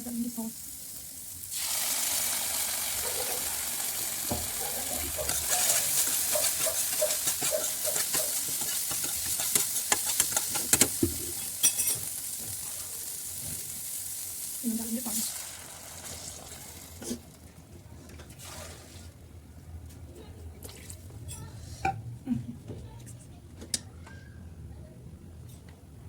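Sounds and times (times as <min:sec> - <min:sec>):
food sizzling in a pan: 0:00.0 - 0:17.3
spoon scraping a pan: 0:04.7 - 0:12.1.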